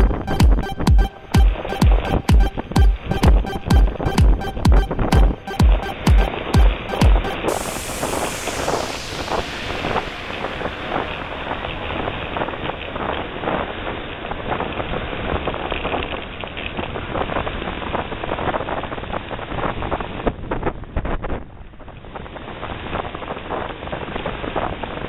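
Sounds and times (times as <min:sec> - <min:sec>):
wind rushing over microphone: 0:07.6 - 0:25.0.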